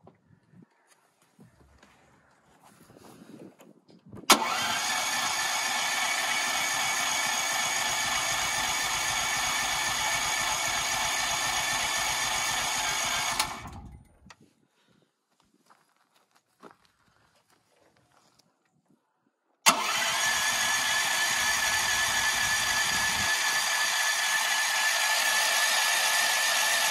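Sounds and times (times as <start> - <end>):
generator engine running: 4.3 - 14.2, 19.7 - 26.9.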